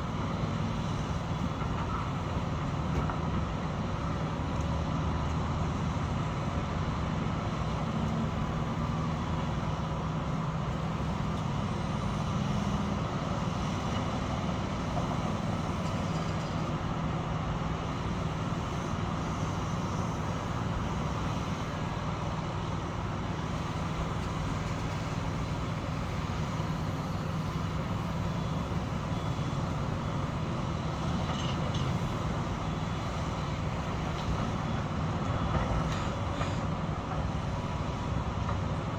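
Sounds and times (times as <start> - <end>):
construction machinery engine drone: 0.0 - 38.9.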